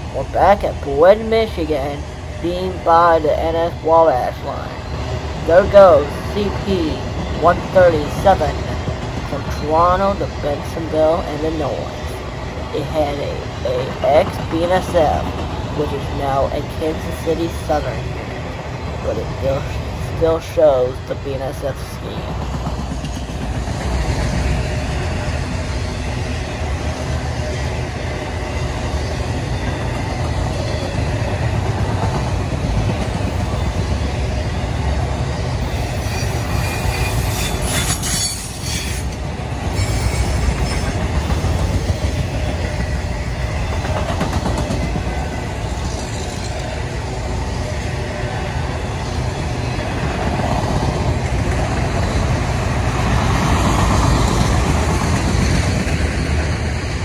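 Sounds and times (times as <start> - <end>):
train wheels rumbling on rails: 0.0 - 57.0
high-pitched wheel squeal: 35.8 - 39.1, 39.7 - 40.9.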